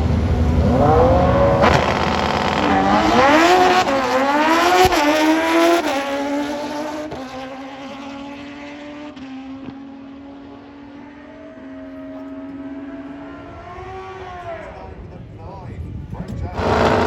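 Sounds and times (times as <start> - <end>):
motorcycle engine at full throttle: 9.7 - 17.0.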